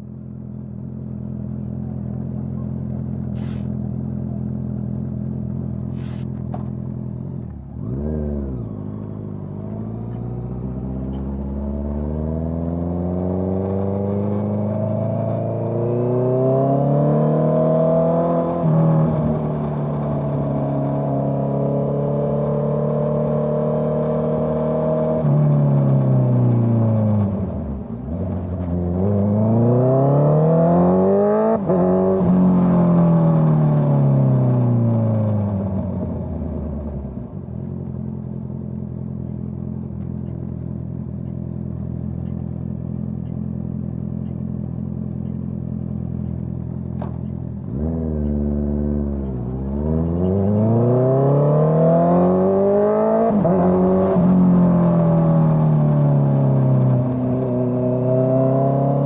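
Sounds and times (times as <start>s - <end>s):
motorcycle engine idling: 0.0s - 7.7s, 37.3s - 47.6s
motorcycle engine accelerating: 0.0s - 59.0s.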